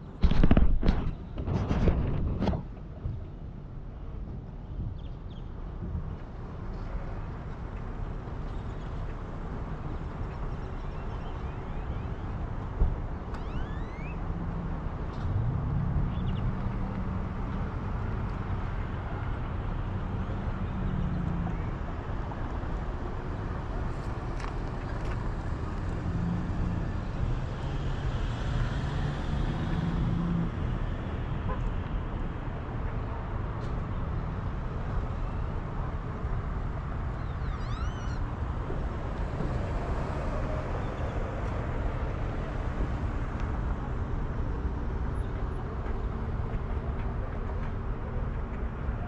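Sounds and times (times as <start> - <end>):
road and wind rumble: 0.0 - 49.0
low engine hum: 5.6 - 49.0
chirping squeak: 37.2 - 38.3.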